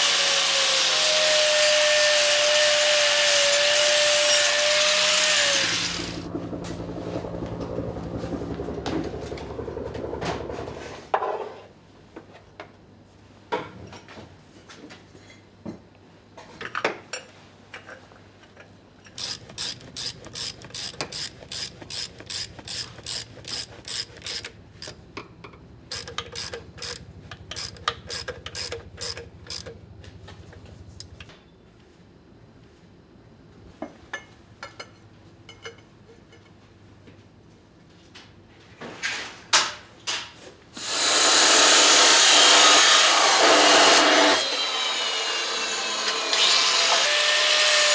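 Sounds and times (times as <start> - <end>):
power tool running: 0.0 - 6.8, 19.2 - 25.0, 25.9 - 31.2, 40.8 - 47.9
ratchet-like mechanical clicks: 19.2 - 25.0, 25.9 - 29.8.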